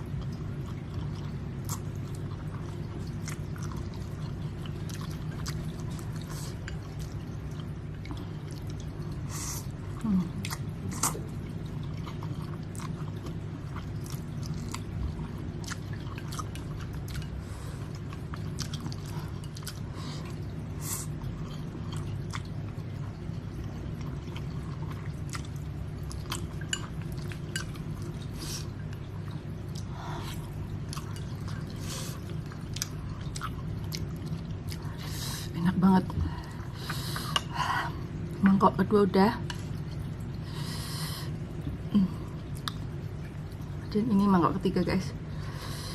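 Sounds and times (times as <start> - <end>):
chewing noodles: 0.2 - 35.4.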